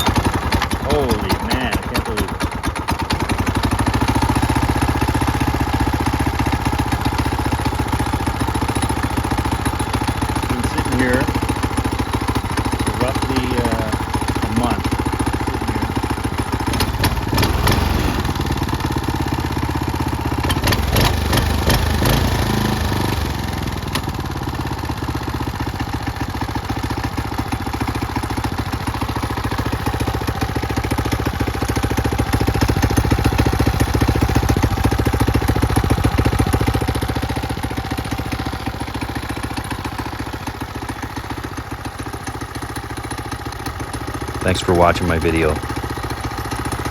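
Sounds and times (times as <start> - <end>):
small engine idling: 0.0 - 46.9.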